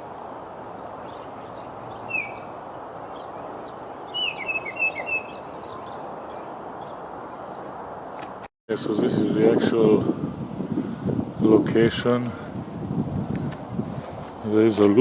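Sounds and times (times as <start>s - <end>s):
songbirds calling and singing: 0.0s - 8.4s.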